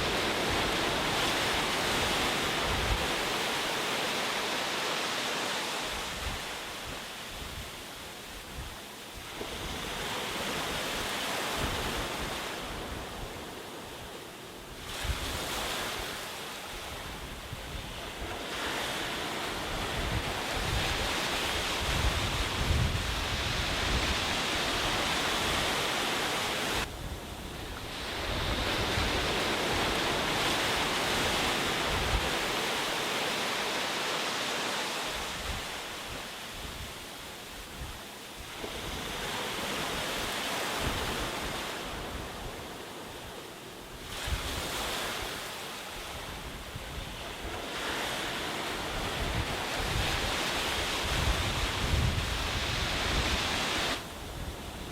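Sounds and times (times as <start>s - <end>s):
wind rumble on microphone: 0.0s - 3.6s, 5.9s - 32.8s, 35.1s - 54.9s
sea waves breaking on beach: 0.0s - 54.9s.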